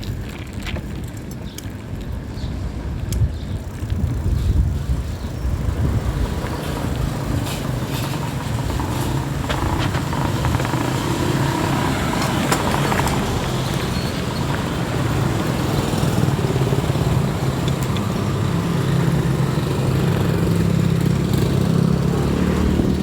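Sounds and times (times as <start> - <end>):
bike rumbling and rattling: 0.0 - 23.0
motor vehicle engine: 3.3 - 23.0.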